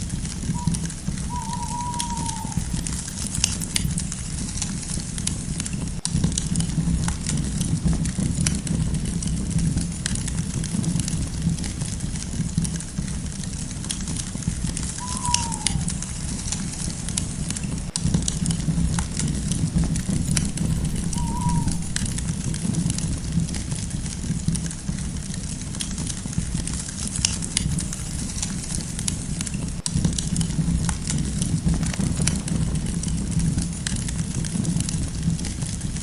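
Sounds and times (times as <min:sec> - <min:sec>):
bird call: 0:00.5 - 0:03.9, 0:14.8 - 0:17.8, 0:20.1 - 0:22.2
campfire crackling: 0:03.0 - 0:36.0.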